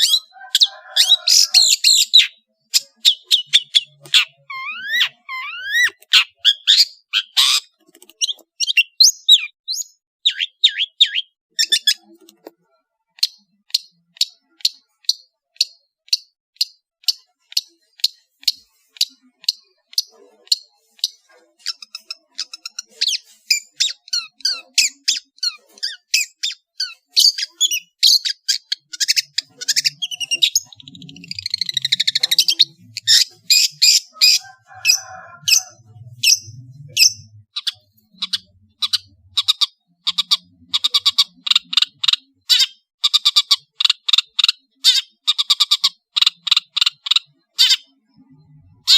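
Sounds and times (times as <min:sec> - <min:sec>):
shrike singing: 0:00.0 - 0:12.2, 0:21.2 - 0:39.5.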